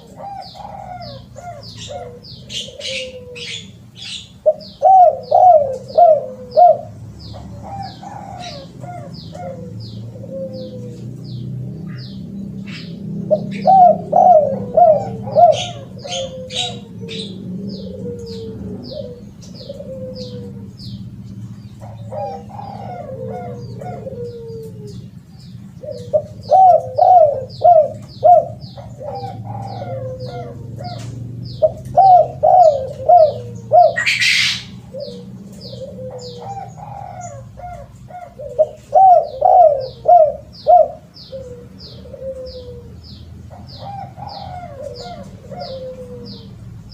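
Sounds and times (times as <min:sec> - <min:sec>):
dove cooing: 0:00.0 - 0:46.9
small bird chirping: 0:00.0 - 0:46.9.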